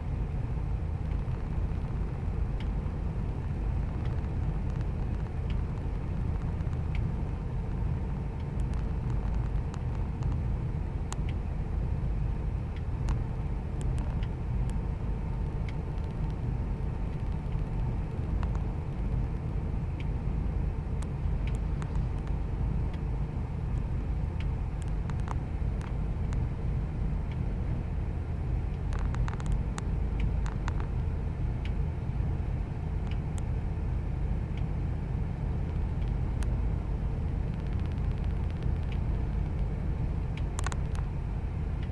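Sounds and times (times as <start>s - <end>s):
engine idling rough: 0.0s - 41.9s
light ticks: 1.1s - 2.9s, 3.7s - 10.5s, 11.1s - 11.5s, 12.7s - 20.2s, 21.0s - 23.1s, 23.7s - 26.5s, 28.6s - 31.8s, 33.0s - 33.6s, 34.5s - 34.8s, 35.5s - 41.1s
clicks: 8.4s - 10.4s, 23.7s - 26.4s, 28.7s - 31.8s, 35.6s - 36.6s, 37.3s - 39.7s, 40.4s - 41.1s.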